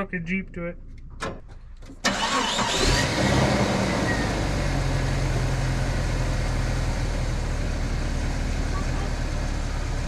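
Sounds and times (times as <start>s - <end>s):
vehicle engine idling: 2.1s - 10.0s.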